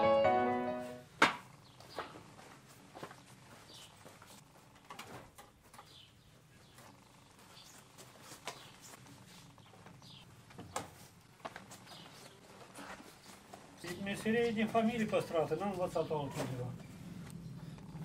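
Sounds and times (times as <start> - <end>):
small bird chirping: 5.8 - 10.3.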